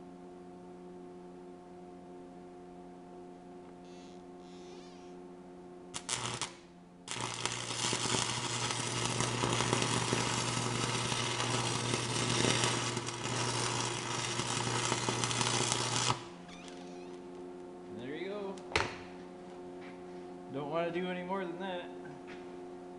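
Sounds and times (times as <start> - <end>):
welder mains hum: 0.0 - 22.9
arc welder crackling: 5.9 - 17.7.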